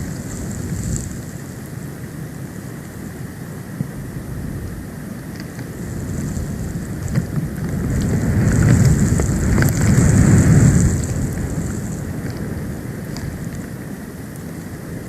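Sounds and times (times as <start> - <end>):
storm wind rumble on microphone: 0.0 - 15.0
light ticks: 5.3 - 5.7, 7.0 - 14.6.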